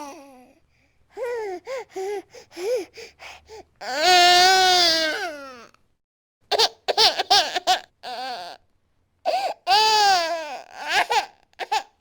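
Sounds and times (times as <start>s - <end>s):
baby crying: 3.8s - 5.7s, 6.5s - 8.6s, 9.3s - 12.0s.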